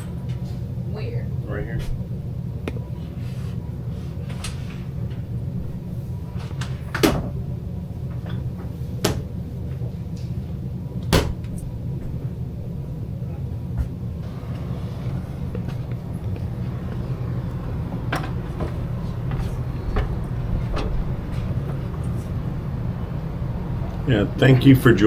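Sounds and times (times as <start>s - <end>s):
cabinet doors being shut: 6.4s - 7.4s, 11.1s - 11.5s, 14.2s - 22.5s
steady low hum: 13.8s - 25.0s.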